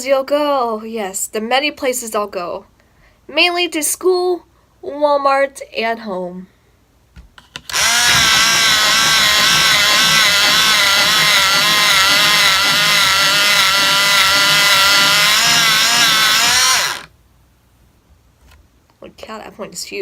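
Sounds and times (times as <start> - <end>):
electric pencil sharpener grinding: 7.7 - 17.1.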